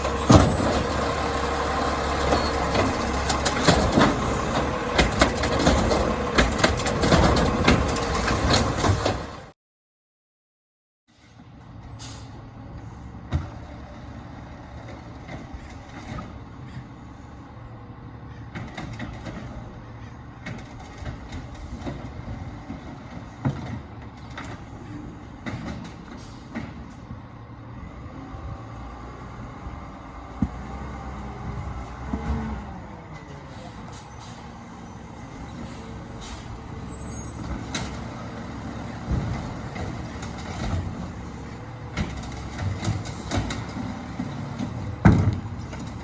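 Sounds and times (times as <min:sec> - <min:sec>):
garbage truck engine running: 0:00.0 - 0:09.5, 0:12.8 - 0:46.0
metal clanks and knocks: 0:02.2 - 0:09.4.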